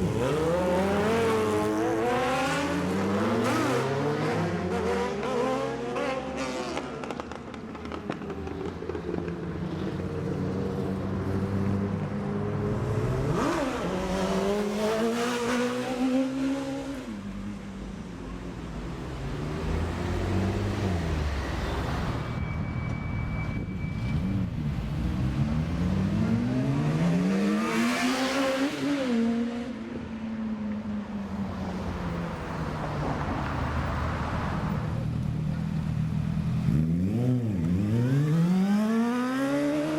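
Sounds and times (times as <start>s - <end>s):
motorcycle engines revving past: 0.0s - 17.2s, 24.0s - 30.0s, 34.8s - 39.9s.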